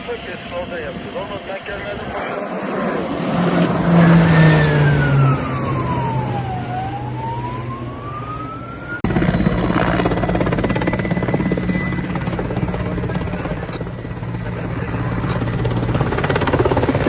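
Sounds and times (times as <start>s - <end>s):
aircraft engine drone: 0.0s - 17.0s
helicopter drone: 0.0s - 17.0s
siren wailing: 2.0s - 14.2s.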